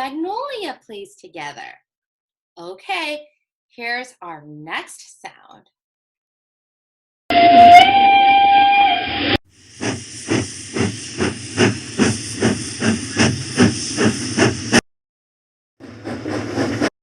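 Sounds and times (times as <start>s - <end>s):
steam whistle: 7.3s - 9.9s
steam locomotive chuffing: 9.5s - 14.8s, 15.8s - 16.9s.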